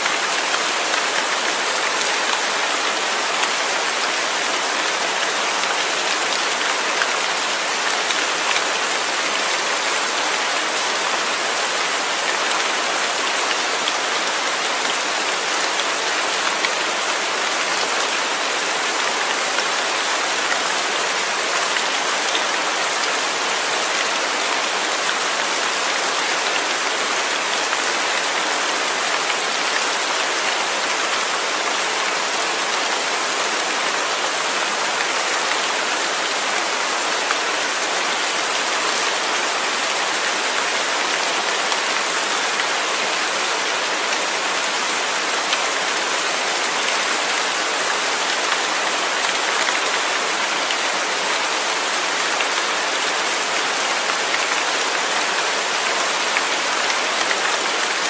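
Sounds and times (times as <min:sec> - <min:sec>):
steady falling rain: 0:00.0 - 0:58.0.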